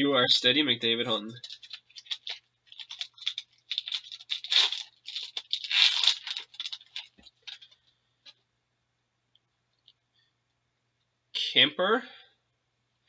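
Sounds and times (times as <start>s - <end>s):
foil wrapper crinkling and tearing: 1.3s - 7.8s.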